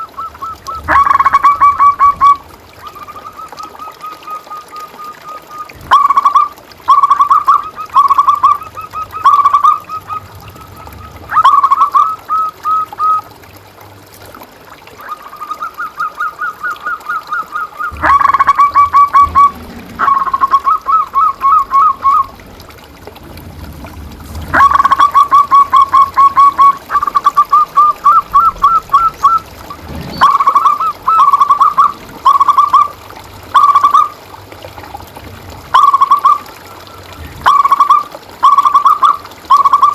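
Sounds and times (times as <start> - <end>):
dove cooing: 0.0 - 3.7, 5.8 - 13.2, 16.4 - 34.1.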